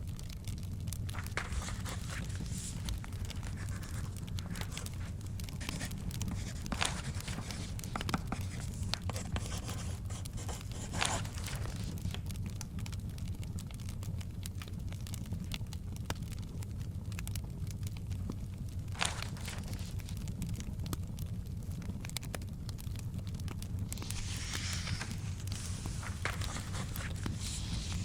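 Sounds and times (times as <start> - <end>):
crackling fireplace: 0.0 - 28.0
book pages turning: 0.9 - 12.3, 18.9 - 20.2, 23.9 - 28.0.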